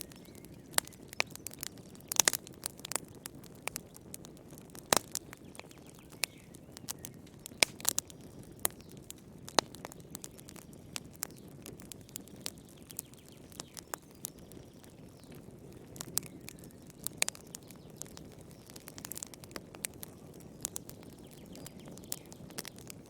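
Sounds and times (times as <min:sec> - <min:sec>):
low rumble of flames: 0:00.0 - 0:23.0
sharp pops of fire: 0:00.0 - 0:23.0
wood fire crackling: 0:00.0 - 0:23.0.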